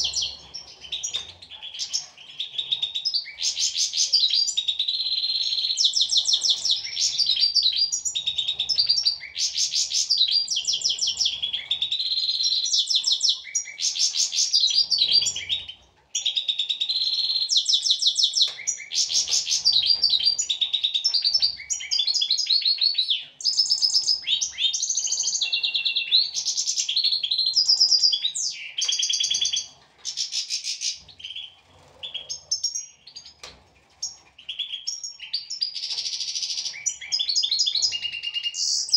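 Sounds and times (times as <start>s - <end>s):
goldfinches twittering and trilling: 0.0s - 38.9s.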